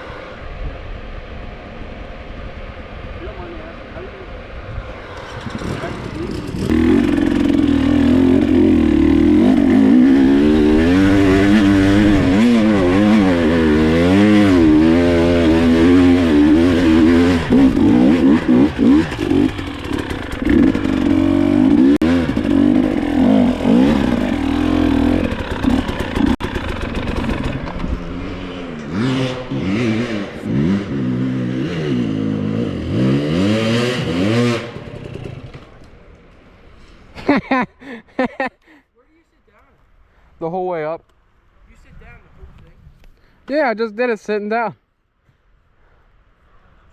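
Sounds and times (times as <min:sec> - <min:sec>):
dirt bike engine revving: 0:05.1 - 0:35.7.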